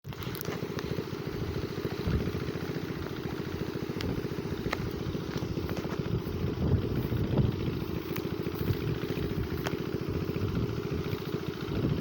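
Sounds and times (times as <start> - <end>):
engine running with low pulsing: 0.0 - 12.0.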